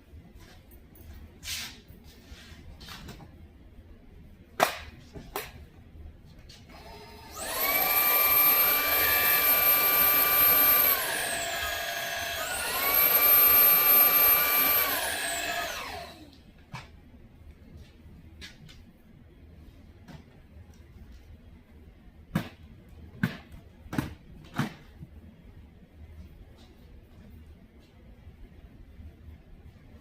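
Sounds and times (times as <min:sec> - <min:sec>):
cordless vacuum motor whine: 0:06.7 - 0:16.4.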